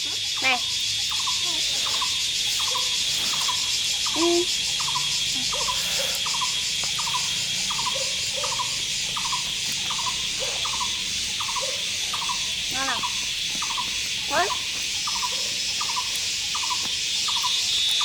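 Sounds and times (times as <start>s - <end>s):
crickets and insects chirring: 0.0s - 18.0s.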